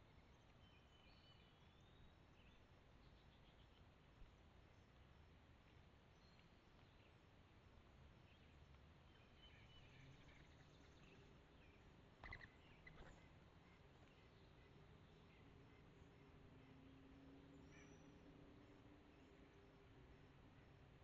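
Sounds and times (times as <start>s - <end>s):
faint chirps: 12.2s - 13.8s.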